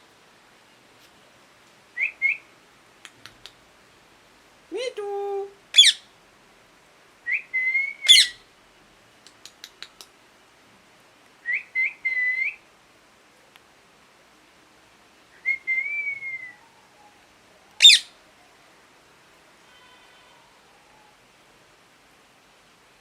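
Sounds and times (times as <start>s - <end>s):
parrot whistling: 5.8s - 6.0s, 7.3s - 8.4s, 17.8s - 18.1s
parrot screeching: 5.8s - 6.1s, 8.0s - 8.4s, 17.8s - 18.2s
faint clicks: 9.2s - 10.2s.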